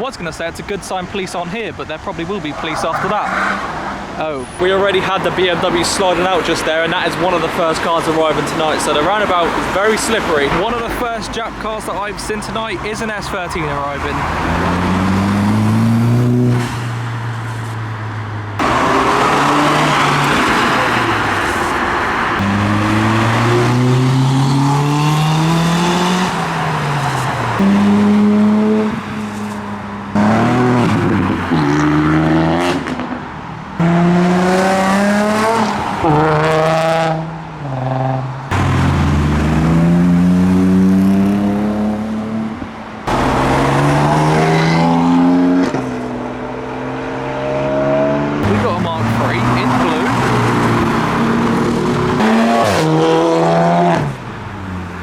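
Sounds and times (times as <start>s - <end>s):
car engines revving hard: 0.0s - 55.0s.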